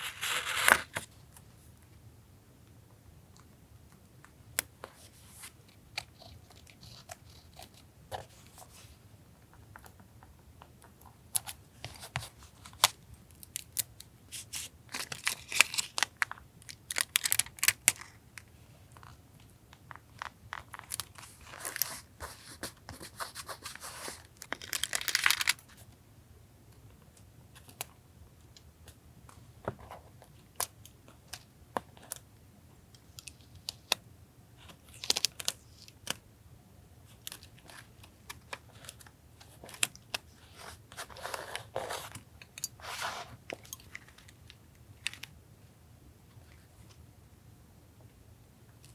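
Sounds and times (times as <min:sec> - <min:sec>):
paper tearing and rustling: 0:00.0 - 0:01.0.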